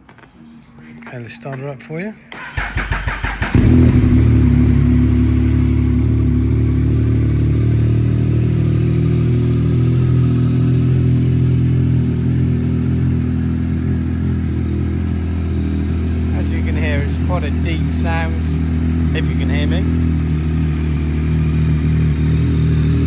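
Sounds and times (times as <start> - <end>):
motorcycle engine idling: 2.4 - 23.0.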